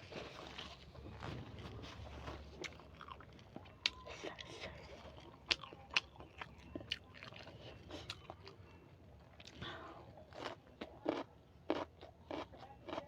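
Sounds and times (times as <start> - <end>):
wet chewing: 0.0 - 8.7.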